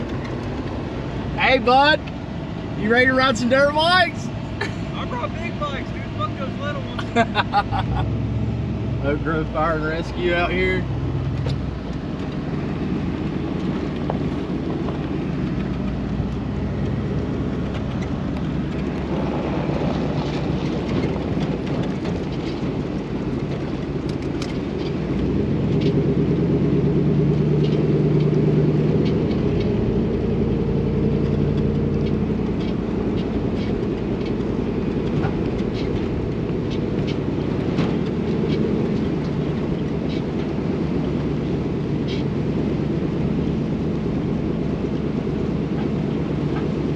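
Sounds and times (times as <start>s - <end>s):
vehicle engine running: 0.0s - 46.9s
light clicks and rattles: 13.4s - 26.1s.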